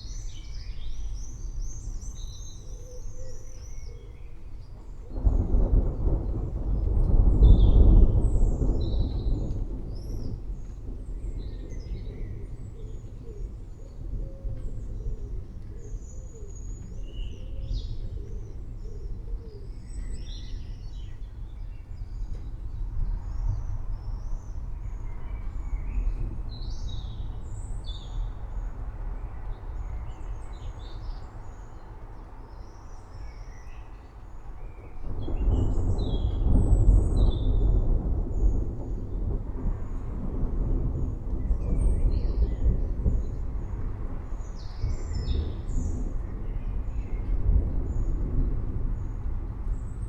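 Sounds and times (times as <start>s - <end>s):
rainstorm rumble: 0.0s - 50.0s.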